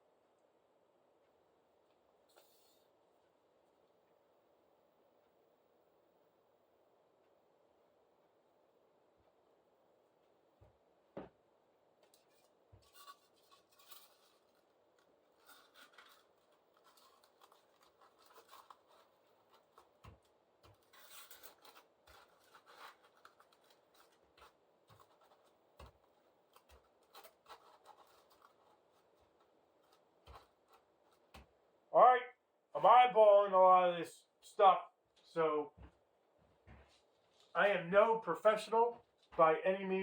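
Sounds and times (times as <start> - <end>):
faint scratching and rubbing: 2.3 - 3.0, 12.1 - 31.4.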